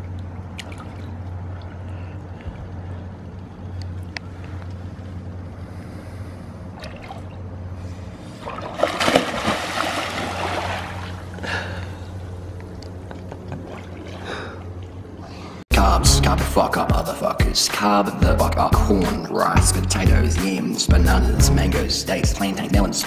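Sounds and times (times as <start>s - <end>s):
water trickling and splashing: 0.0s - 2.9s, 6.8s - 7.6s, 8.3s - 11.5s, 13.5s - 15.3s
steady low hum: 0.0s - 23.0s.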